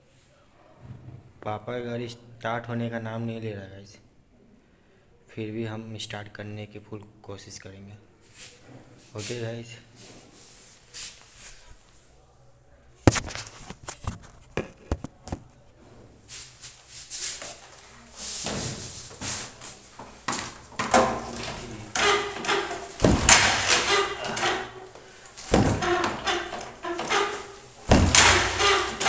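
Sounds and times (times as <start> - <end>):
scraping and clattering: 13.1 - 29.0
motorcycle clunks and knocks: 18.4 - 29.0.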